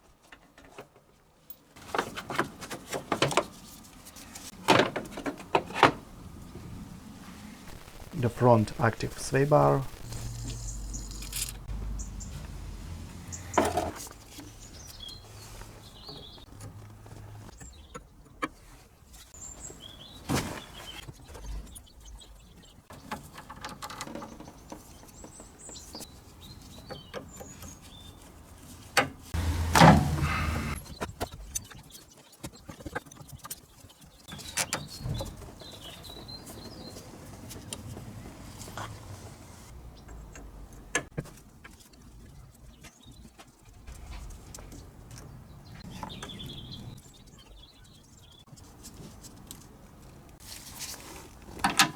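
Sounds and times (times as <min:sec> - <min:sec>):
small birds chirping: 0:07.6 - 0:18.3, 0:19.1 - 0:23.4, 0:24.1 - 0:28.8, 0:29.4 - 0:41.0, 0:41.8 - 0:48.7.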